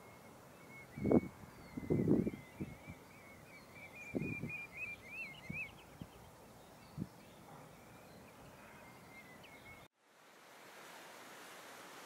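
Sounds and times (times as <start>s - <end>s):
thin wavering bird whistle: 0.0s - 6.0s.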